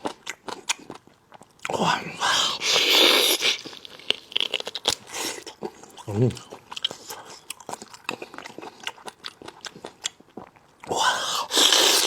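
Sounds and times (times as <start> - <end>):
close chewing: 0.0 - 12.0.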